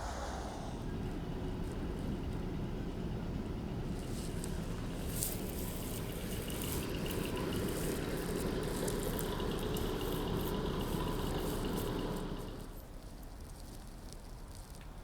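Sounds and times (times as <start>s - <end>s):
vehicle engine running: 0.0s - 12.9s
street traffic: 0.0s - 15.0s.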